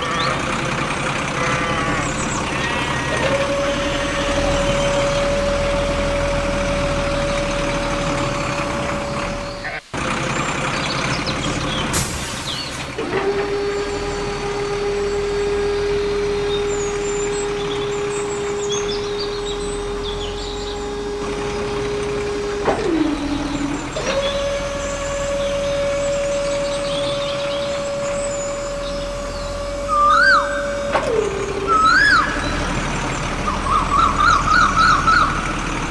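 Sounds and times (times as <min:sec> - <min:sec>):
birds chirping: 0:00.0 - 0:35.9.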